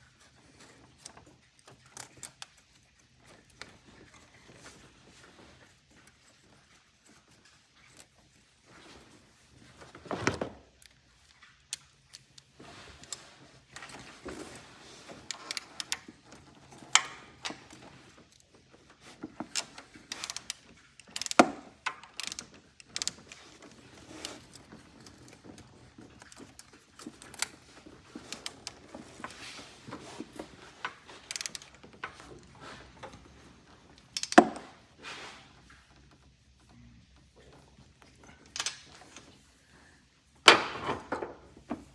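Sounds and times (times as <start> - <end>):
ratcheting and scraping: 11.7 - 33.4.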